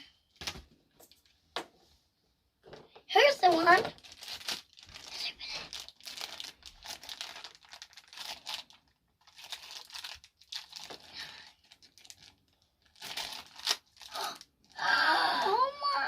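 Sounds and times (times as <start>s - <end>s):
plastic packaging crinkling and tearing: 3.2s - 14.8s.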